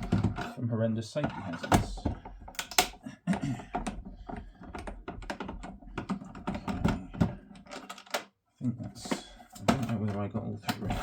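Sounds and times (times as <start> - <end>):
screwdriver clicks and knocks: 3.7 - 8.3.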